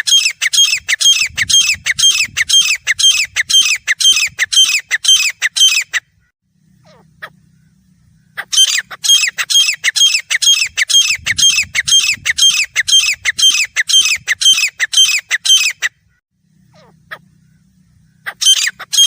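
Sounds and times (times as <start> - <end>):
francolin harsh repeated calls: 0.0 - 16.0, 16.6 - 19.0.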